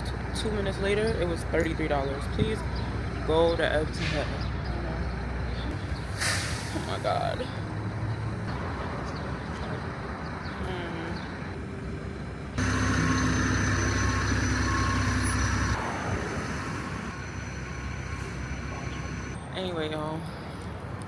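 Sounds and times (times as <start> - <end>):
vehicle engine rumbling: 0.0 - 19.5
road traffic: 0.0 - 21.0
loud engine hum: 7.6 - 19.4.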